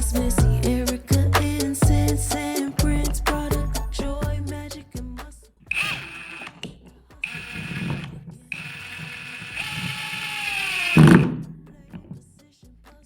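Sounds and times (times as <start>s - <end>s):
cordless drill driving screw: 5.7s - 11.4s.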